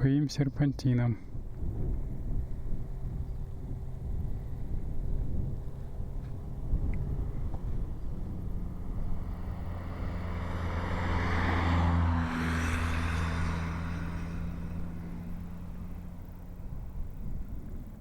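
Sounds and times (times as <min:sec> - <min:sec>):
tyre road noise: 0:00.0 - 0:18.0
car engine drone: 0:01.0 - 0:18.0.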